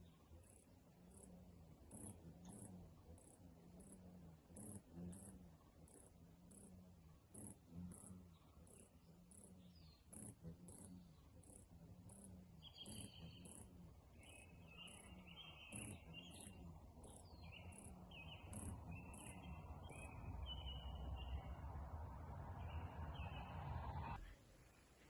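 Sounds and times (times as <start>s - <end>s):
birds chirping: 0.0s - 24.2s.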